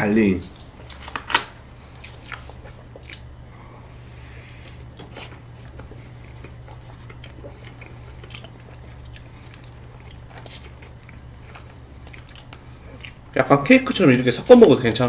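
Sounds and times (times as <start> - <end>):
soft chewing: 1.7 - 13.5.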